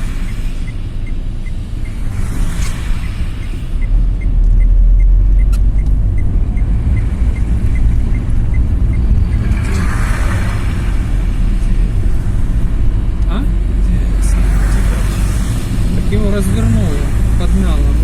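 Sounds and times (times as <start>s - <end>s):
faint regular ticking: 0.0s - 3.2s, 3.8s - 9.5s
car engine and road rumble: 0.0s - 18.0s.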